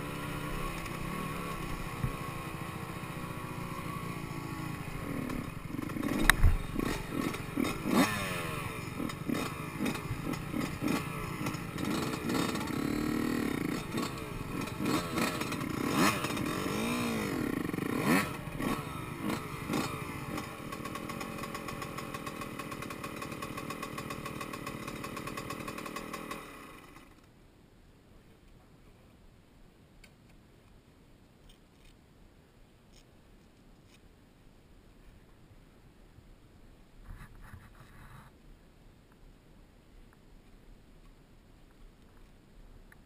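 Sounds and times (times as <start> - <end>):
dirt bike engine revving: 0.0 - 27.2.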